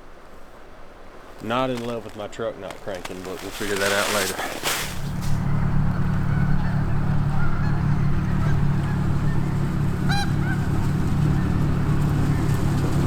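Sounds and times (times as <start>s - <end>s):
geese honking: 2.8s - 13.0s
low engine hum: 4.2s - 13.0s.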